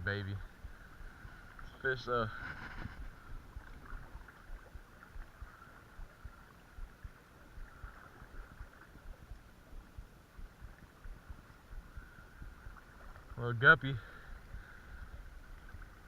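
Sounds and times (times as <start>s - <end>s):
creek water running: 0.0s - 16.0s
low bumps on microphone: 2.3s - 3.2s.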